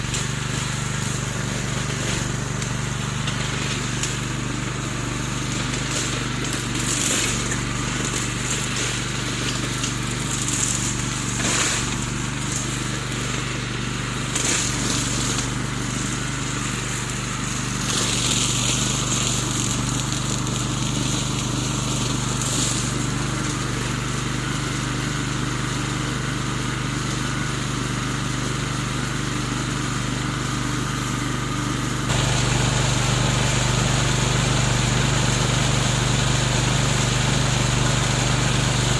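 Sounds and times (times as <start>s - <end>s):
crackling grass cutting: 0.0s - 24.8s, 30.9s - 38.9s
lawn mower engine running: 0.0s - 38.9s.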